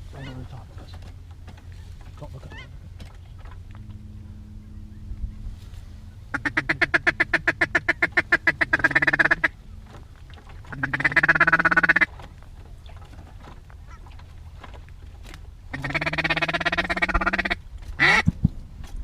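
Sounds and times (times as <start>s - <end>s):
duck call quacking: 6.3s - 9.6s, 10.7s - 12.1s, 15.7s - 18.3s.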